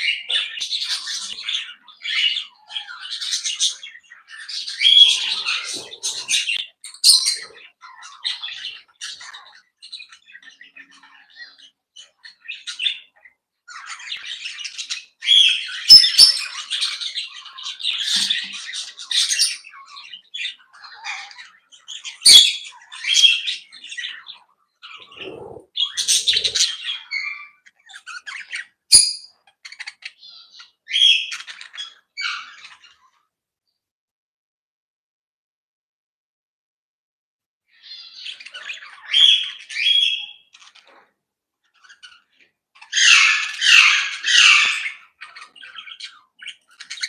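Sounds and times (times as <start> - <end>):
parrots chattering and squawking: 0.0 - 33.2, 37.8 - 47.0.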